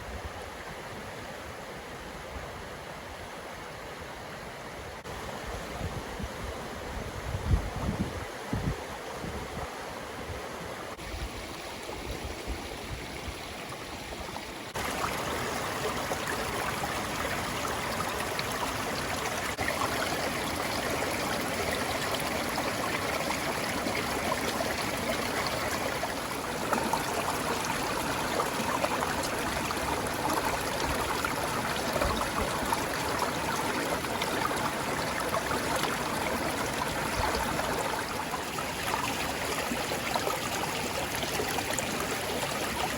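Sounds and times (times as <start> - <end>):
stream running: 3.0 - 42.9.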